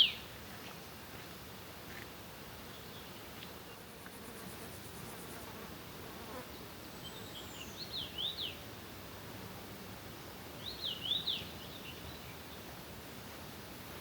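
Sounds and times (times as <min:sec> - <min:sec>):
songbird singing: 0:00.0 - 0:00.3, 0:06.5 - 0:08.6, 0:10.6 - 0:12.7
outdoor background hiss: 0:00.0 - 0:14.0.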